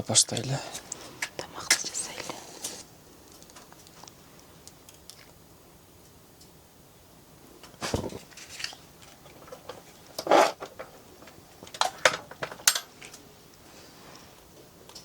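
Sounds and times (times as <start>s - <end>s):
cookware and utensils clanking: 9.3s - 11.0s.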